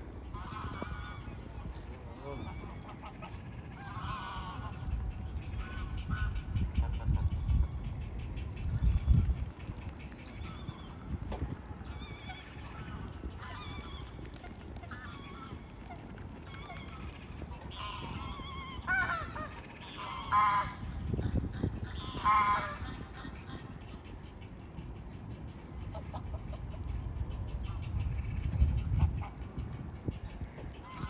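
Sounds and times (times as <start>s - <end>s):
low background hum: 0.0s - 31.0s
waterbirds honking: 9.1s - 24.6s.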